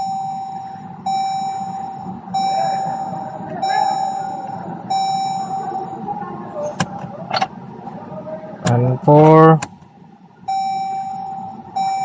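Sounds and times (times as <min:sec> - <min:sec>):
dashboard warning chime beeps: 0:00.0 - 0:06.2, 0:10.4 - 0:12.0.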